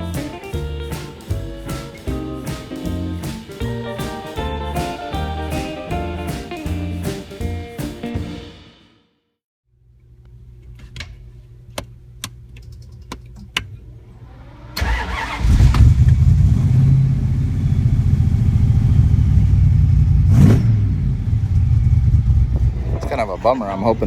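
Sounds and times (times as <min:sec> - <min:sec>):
car engine starting and idling: 0:00.0 - 0:08.7, 0:14.2 - 0:24.0.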